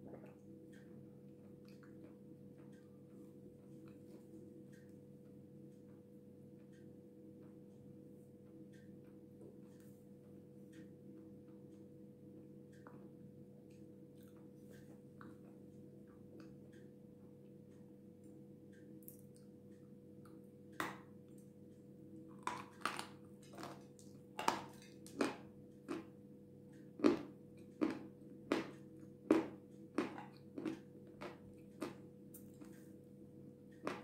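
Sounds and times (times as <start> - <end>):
crunching and chewing: 22.3 - 32.9, 33.7 - 34.0.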